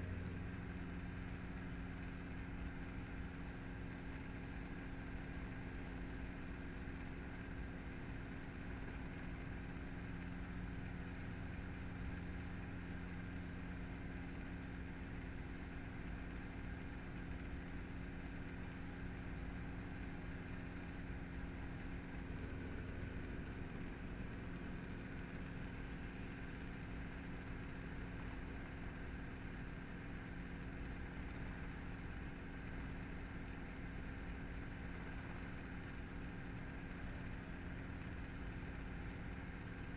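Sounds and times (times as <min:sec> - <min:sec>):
helicopter engine and rotor: 0:00.0 - 0:39.7.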